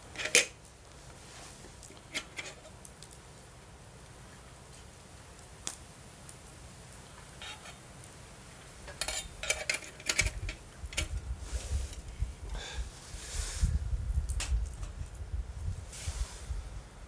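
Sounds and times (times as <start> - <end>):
campfire crackling and popping: 0.0 - 9.4.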